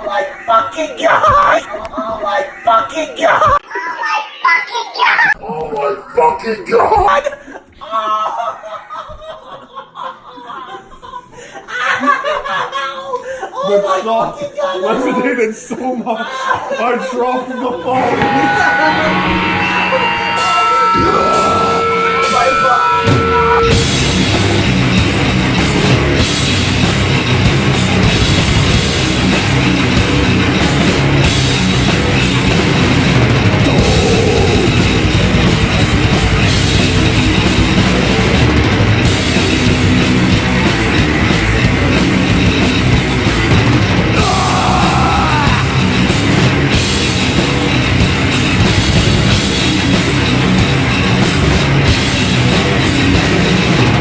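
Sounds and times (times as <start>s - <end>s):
bass guitar: 18.0s - 54.0s
distorted electric guitars: 18.0s - 54.0s
drum kit pounding: 18.0s - 54.0s.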